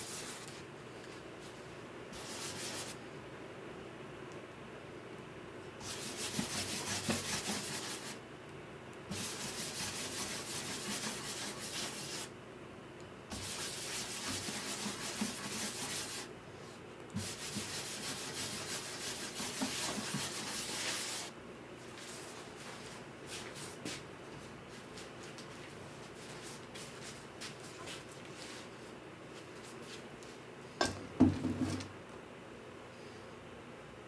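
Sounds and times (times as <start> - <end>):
sandpaper rubbing on wood: 5.8 - 8.2, 9.1 - 12.3, 13.3 - 16.3, 17.2 - 21.3.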